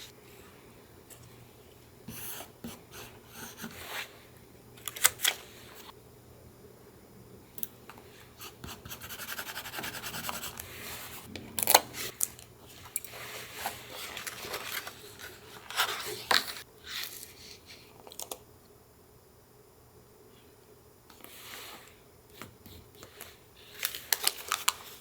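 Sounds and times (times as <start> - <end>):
paper crackling: 23.0 - 25.0.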